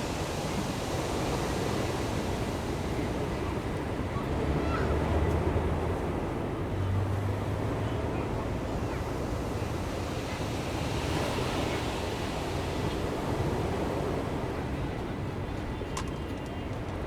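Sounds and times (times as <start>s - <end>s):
ocean surf breaking: 7.2s - 15.5s.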